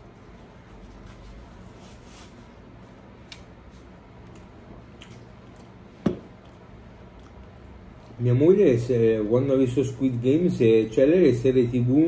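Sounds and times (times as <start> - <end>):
air conditioner humming: 0.0 - 12.0
quiet chewing: 3.1 - 8.2.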